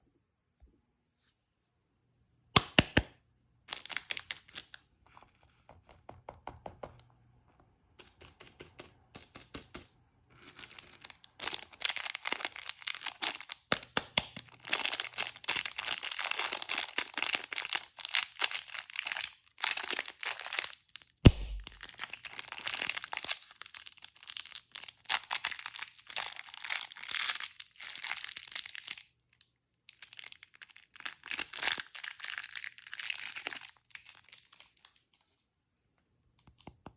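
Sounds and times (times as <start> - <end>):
candy wrappers crinkling and tearing: 3.7 - 5.6, 8.0 - 35.1
sharp knock: 21.3 - 21.8.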